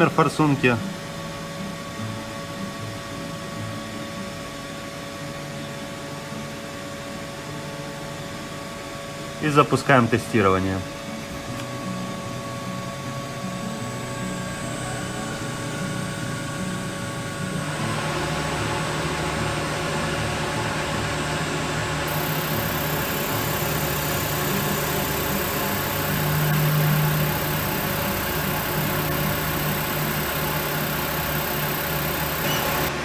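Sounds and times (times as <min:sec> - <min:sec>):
test bench mechanical hum: 0:00.0 - 0:33.0
high hiss: 0:13.1 - 0:33.0.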